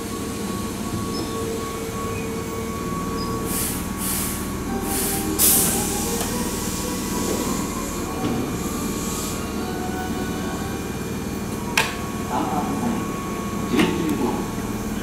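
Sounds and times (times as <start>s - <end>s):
train humming: 0.0s - 15.0s
train air hisses: 3.1s - 15.0s.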